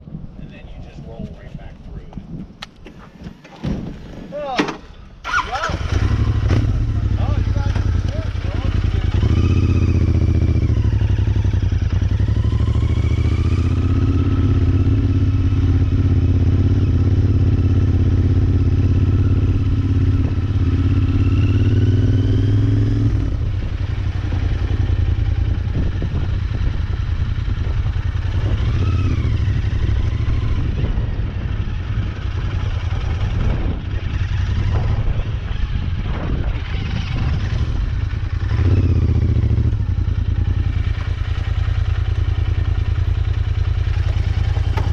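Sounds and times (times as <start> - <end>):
motorcycle engine running: 5.3 - 44.9.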